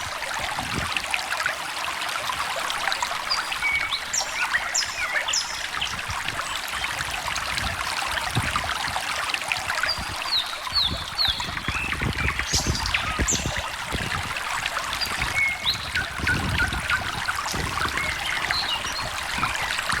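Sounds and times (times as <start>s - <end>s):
stream trickling and gurgling: 0.0s - 20.0s
birds chirping: 2.9s - 7.0s, 9.8s - 20.0s.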